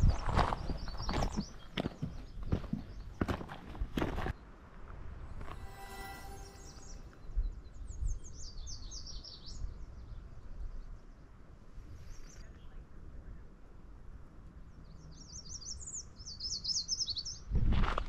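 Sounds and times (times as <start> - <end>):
songbird singing: 0.0 - 4.6, 5.5 - 11.4, 14.6 - 17.5.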